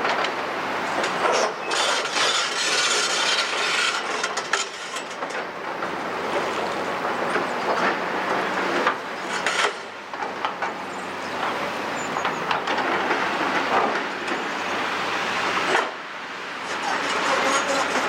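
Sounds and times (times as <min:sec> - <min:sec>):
rubble clattering and scraping: 0:01.1 - 0:08.0.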